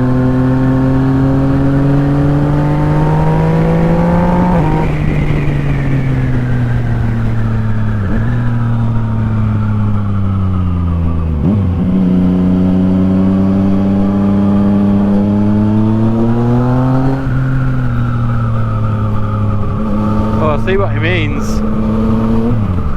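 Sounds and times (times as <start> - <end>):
motorcycle engine revving: 0.0 - 22.9.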